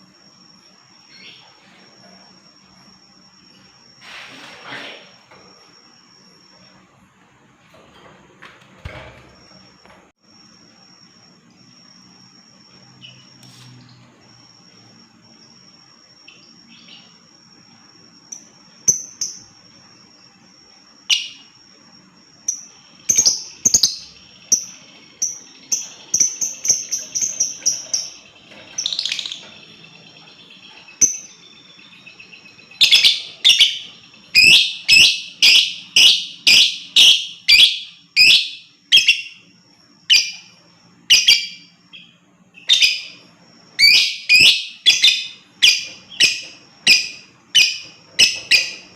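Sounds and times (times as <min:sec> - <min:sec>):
thin steady high tone: 0:00.0 - 0:04.1, 0:10.2 - 0:48.9
lovebird calling: 0:22.6 - 0:39.5, 0:40.1 - 0:48.9.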